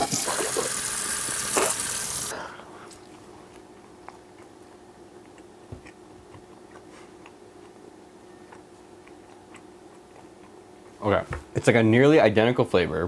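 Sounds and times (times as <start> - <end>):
faint steady hum: 0.0 - 13.0
person chewing: 2.7 - 11.0.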